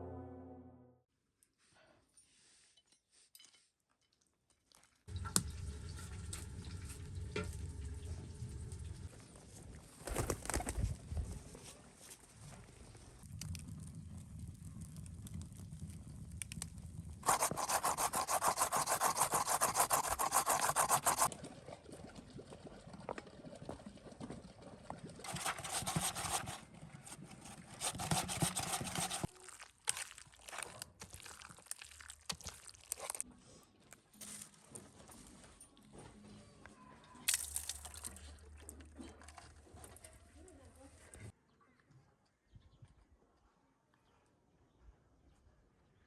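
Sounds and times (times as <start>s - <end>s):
rasping scraping strokes: 17.2s - 21.3s, 25.3s - 29.3s.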